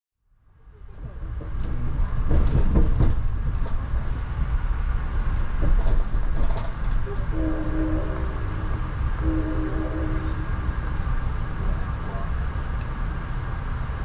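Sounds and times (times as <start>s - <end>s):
train wheels rumbling on rails: 0.6s - 14.0s
clicks and knocks: 1.4s - 3.9s, 5.6s - 7.1s.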